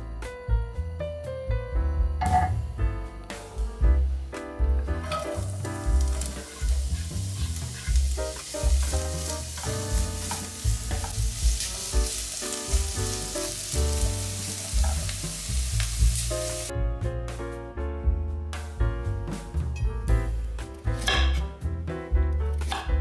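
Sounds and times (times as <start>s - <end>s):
background music with beat: 0.0s - 23.0s
food sizzling in a pan: 5.0s - 16.7s.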